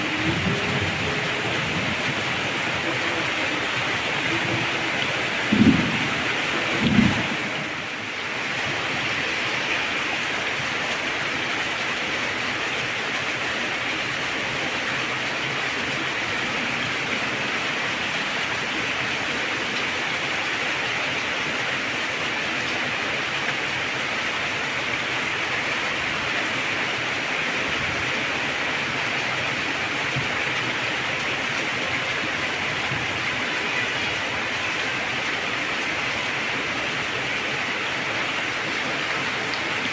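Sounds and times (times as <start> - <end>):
heavy rain hissing: 0.0 - 39.9
thunderclap: 5.4 - 7.8.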